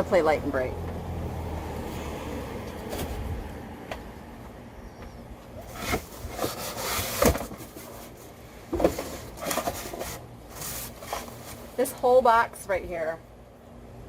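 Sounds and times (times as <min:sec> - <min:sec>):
knocks and rustles: 0:05.6 - 0:11.6
objects being set down: 0:08.7 - 0:10.1.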